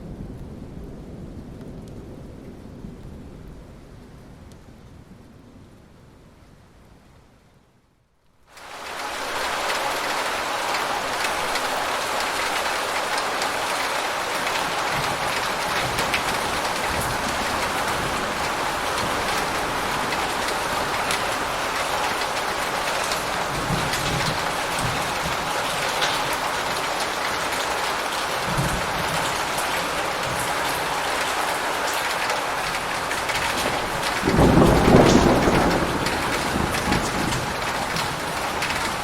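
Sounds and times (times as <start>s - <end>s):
steady rain: 0.0s - 39.0s
thunder rumbling: 9.0s - 39.0s.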